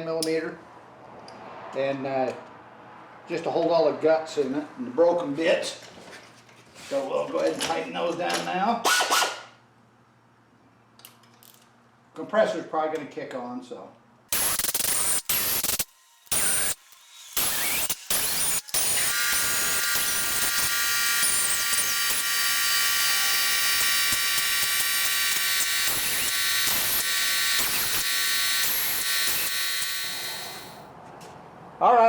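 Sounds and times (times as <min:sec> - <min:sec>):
air ratchet bursts: 0:08.8 - 0:09.4, 0:14.3 - 0:30.8
air compressor motor hum: 0:17.4 - 0:30.8.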